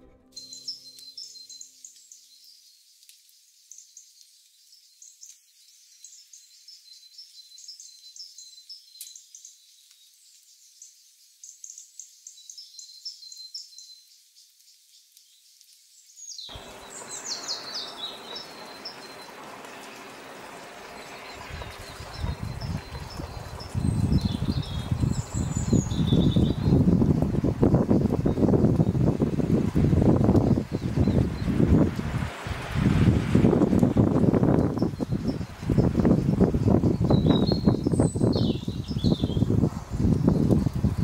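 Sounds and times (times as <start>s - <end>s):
small birds chirping: 0.0s - 41.0s
steady background hiss: 16.4s - 22.2s.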